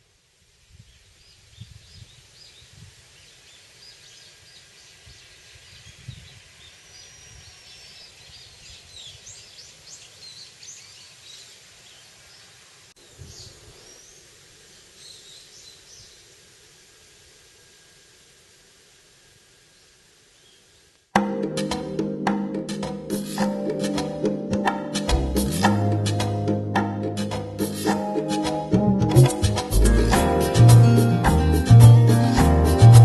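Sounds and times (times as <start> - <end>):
steady outdoor hiss: 0.0 - 33.0
low rumbles: 25.1 - 27.8.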